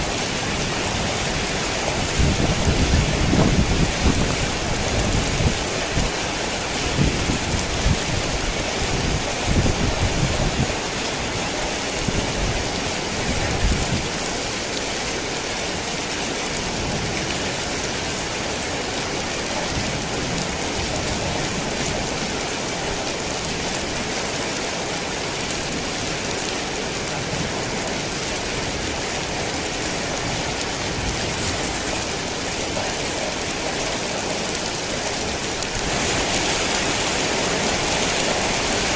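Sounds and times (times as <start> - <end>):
thunder rumbles: 0.0 - 10.8
heavy rain falling: 0.0 - 38.9.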